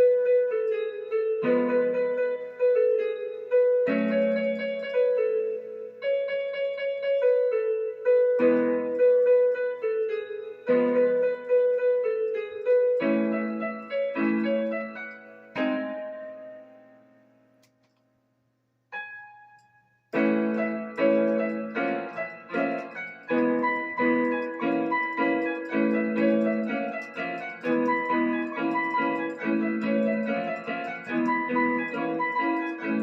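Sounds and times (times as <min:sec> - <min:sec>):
piano-like keyboard chords: 0:00.0 - 0:18.0, 0:18.9 - 0:33.0.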